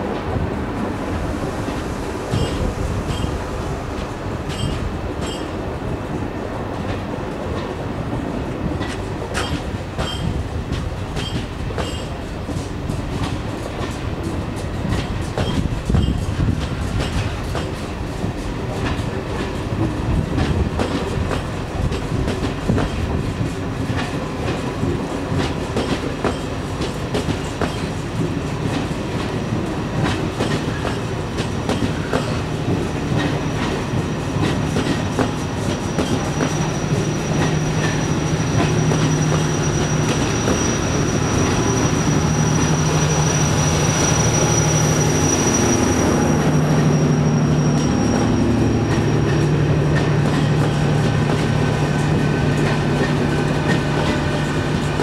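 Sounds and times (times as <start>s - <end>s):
train wheels clicking over rail joints: 1.7s - 5.6s, 6.7s - 55.0s
thin high squeal: 35.5s - 49.4s.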